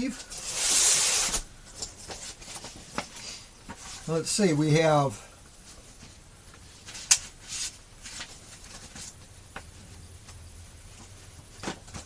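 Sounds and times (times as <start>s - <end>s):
paper rustling: 6.8s - 9.3s.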